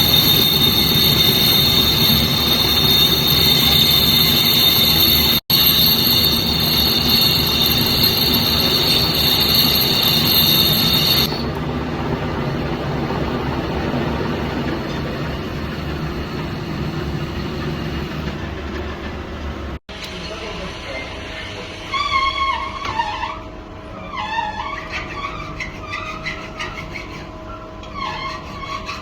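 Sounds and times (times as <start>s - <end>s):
cutting tool squealing whine: 0.0s - 11.5s, 20.8s - 29.0s
metal lathe running: 0.0s - 11.5s.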